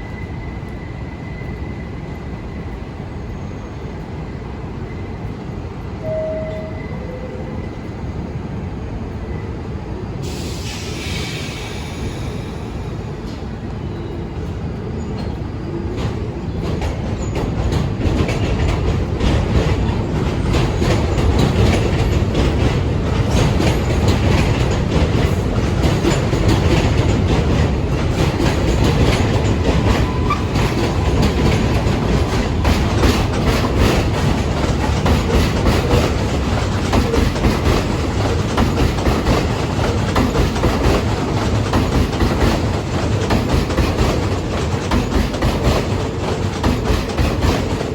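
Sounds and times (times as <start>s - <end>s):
train wheels clattering on rails: 0.0s - 47.9s.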